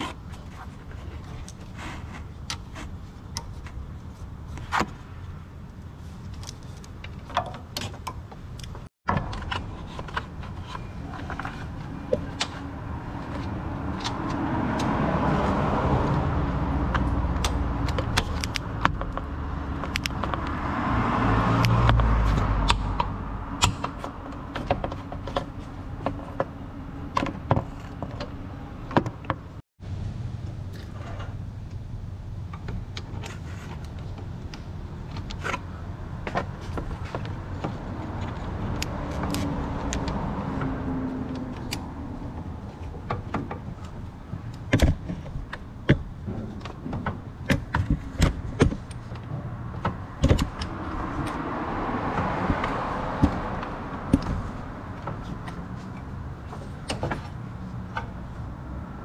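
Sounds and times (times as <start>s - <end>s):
vehicle passing: 11.1s - 28.9s, 35.8s - 43.0s, 46.5s - 59.0s.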